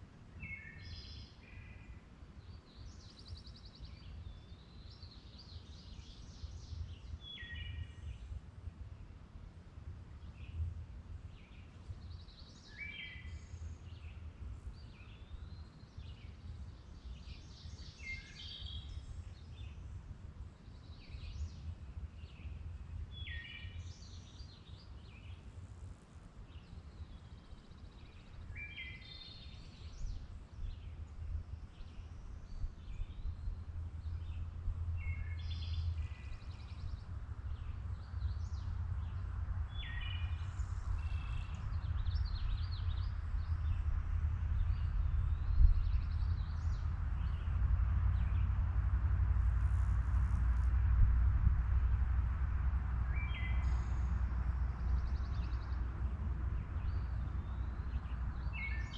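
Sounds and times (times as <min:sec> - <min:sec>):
songbirds chirping: 0:00.0 - 0:58.9
steady low rumble: 0:13.2 - 0:58.9.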